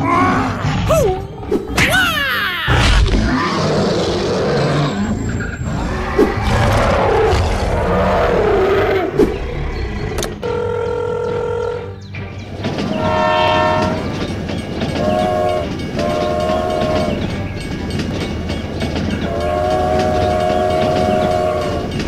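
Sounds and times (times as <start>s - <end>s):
dinosaur roars and growls: 0.0s - 1.6s, 2.6s - 10.4s
background music: 0.0s - 22.0s
train horn: 12.9s - 14.2s, 14.9s - 17.4s, 19.2s - 22.0s.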